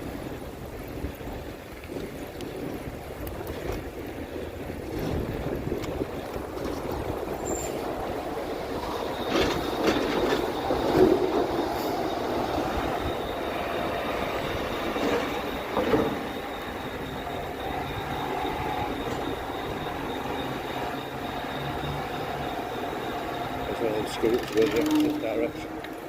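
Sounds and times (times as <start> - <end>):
bike rumbling along road: 0.0 - 26.0
thin high whine: 5.8 - 26.0.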